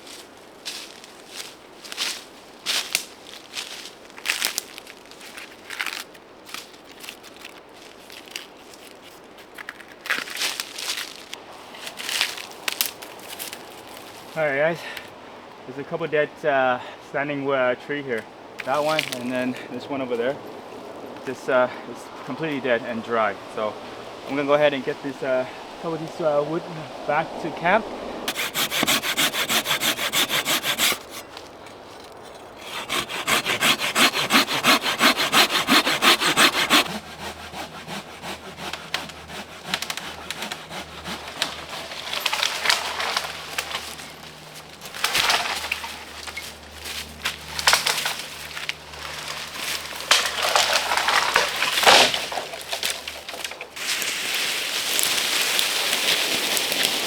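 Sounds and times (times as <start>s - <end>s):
hand saw cutting wood: 28.3s - 43.9s, 49.3s - 54.0s
wood rubbing and cracking: 28.3s - 57.0s.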